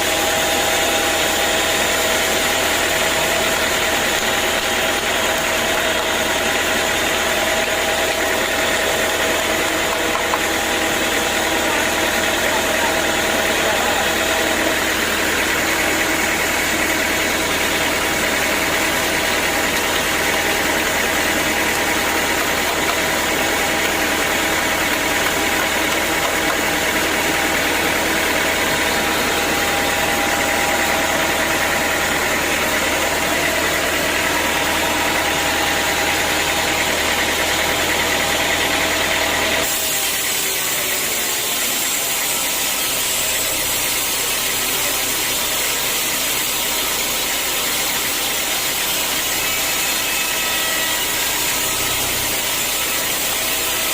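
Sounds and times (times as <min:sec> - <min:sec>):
motor humming: 0:00.0 - 0:53.9
saw cutting wood: 0:00.0 - 0:53.9.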